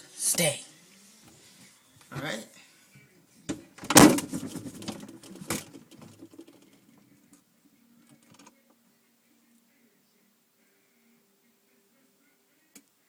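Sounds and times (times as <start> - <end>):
refrigerator door knocking shut: 3.8 - 4.9.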